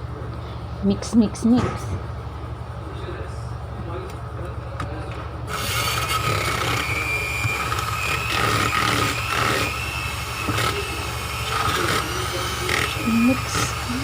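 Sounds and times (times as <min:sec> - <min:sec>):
electric hand mixer whining: 0:05.5 - 0:14.0.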